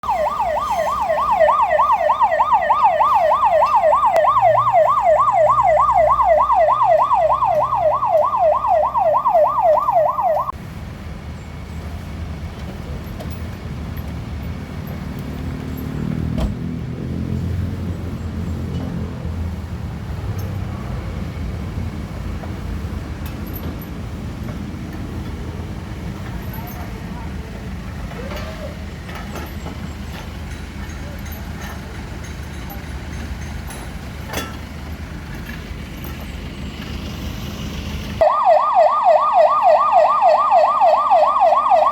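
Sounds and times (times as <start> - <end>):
electronic siren yelping: 0.0 - 10.6, 38.2 - 41.9.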